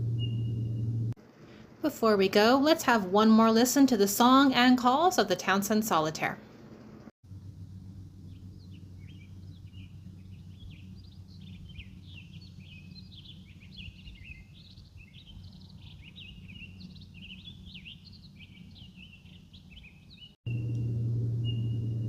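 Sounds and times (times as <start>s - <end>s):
bird warbling song: 0.0s - 1.0s, 8.2s - 20.7s, 21.4s - 22.0s
low background rumble: 0.0s - 2.8s, 6.5s - 22.0s.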